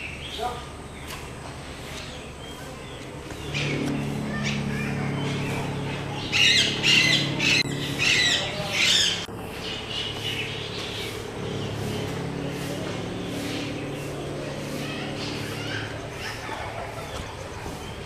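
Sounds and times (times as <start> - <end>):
steady low hum: 0.0 - 18.0
birds squawking harshly: 2.5 - 18.0.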